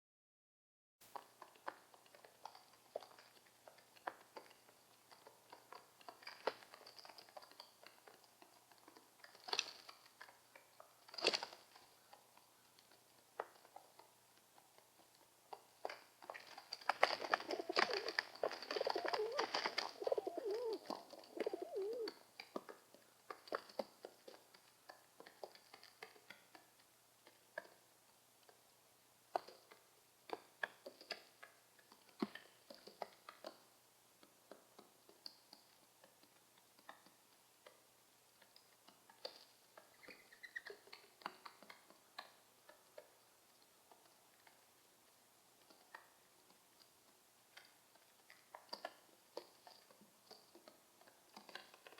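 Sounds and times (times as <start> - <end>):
pigeons and doves cooing: 17.2 - 22.2.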